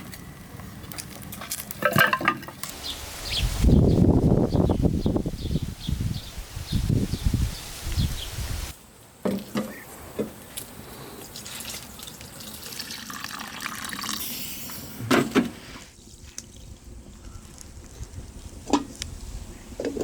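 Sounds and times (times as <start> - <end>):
water running and splashing: 11.3 - 14.2.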